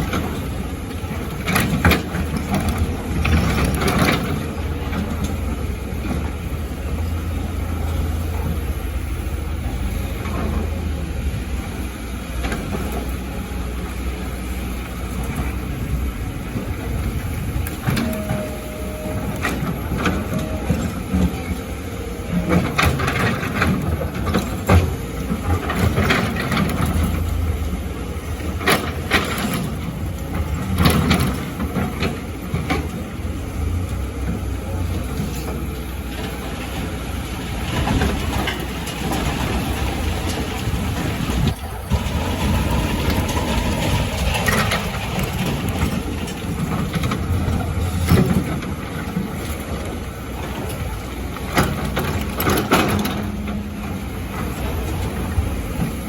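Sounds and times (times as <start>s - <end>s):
excavator engine running: 0.0s - 56.0s
rock and sand clattering: 37.6s - 53.4s.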